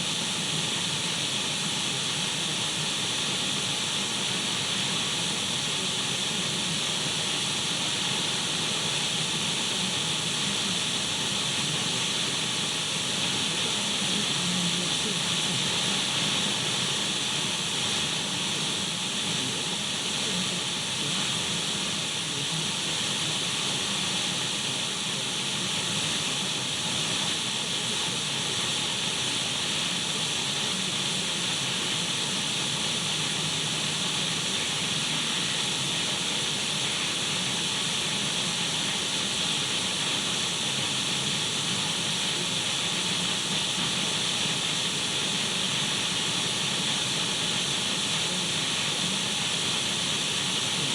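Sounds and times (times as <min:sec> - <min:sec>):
radio static hiss: 0:13.2 - 0:40.4.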